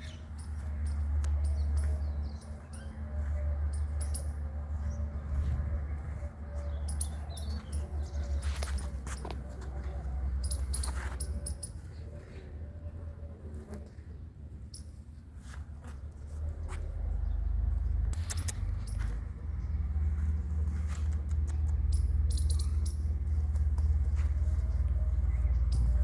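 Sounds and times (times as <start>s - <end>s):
small birds chirping: 0.0s - 13.1s, 16.8s - 26.0s
steady low rumble: 0.0s - 13.5s, 15.7s - 26.0s.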